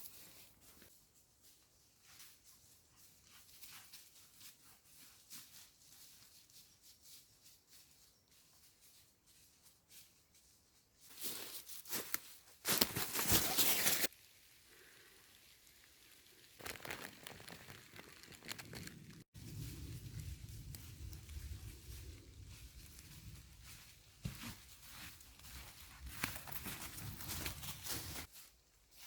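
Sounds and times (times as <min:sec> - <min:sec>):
crunching crackling noise: 0:12.7 - 0:28.3.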